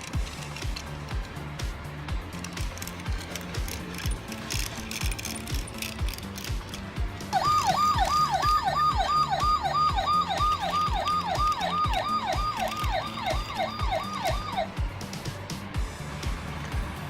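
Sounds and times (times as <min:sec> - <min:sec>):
background music with beat: 0:00.0 - 0:17.0
electronic toy police siren: 0:07.3 - 0:14.7.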